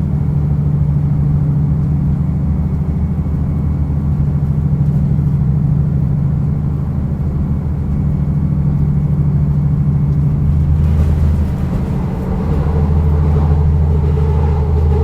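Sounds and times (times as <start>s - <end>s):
diesel railcar engine hum: 0.0s - 15.0s
rushing noise: 10.5s - 15.0s.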